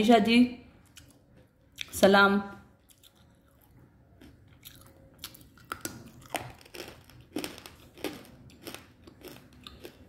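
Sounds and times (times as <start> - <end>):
brittle chewing crunches: 2.8 - 10.0.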